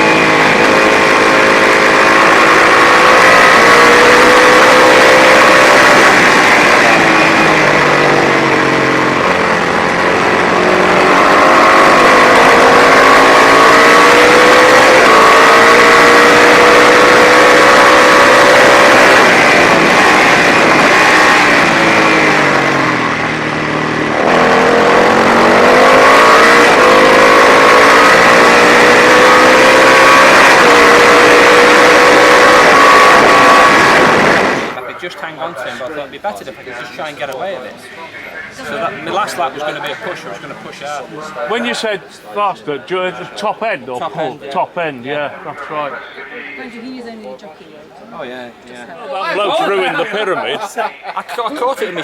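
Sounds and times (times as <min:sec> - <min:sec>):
racing motorcycle engine revving: 0:00.0 - 0:34.8.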